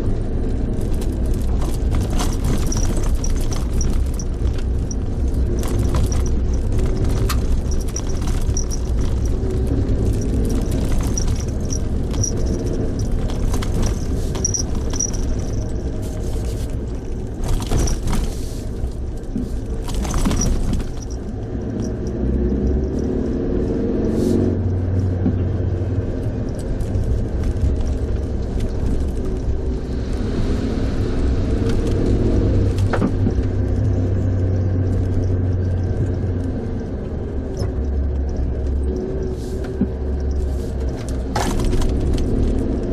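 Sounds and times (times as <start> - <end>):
car engine and road rumble: 0.0 - 42.9.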